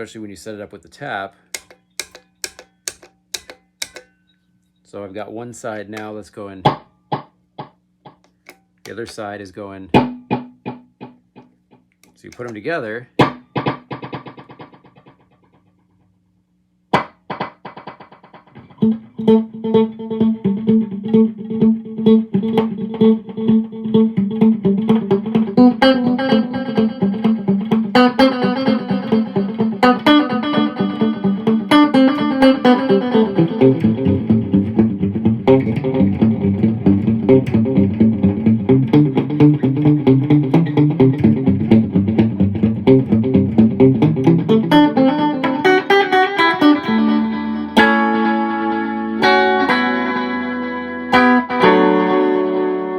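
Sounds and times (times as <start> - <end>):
electric guitar with delay: 18.6 - 52.9.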